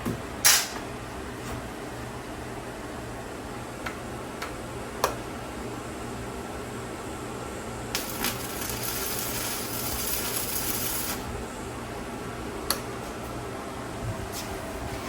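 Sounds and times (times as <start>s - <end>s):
arc welder crackling and buzzing: 5.0s - 13.2s.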